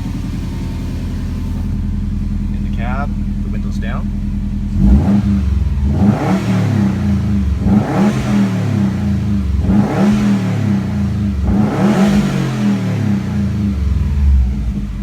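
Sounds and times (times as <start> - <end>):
car engine revving and idling: 0.0 - 15.0.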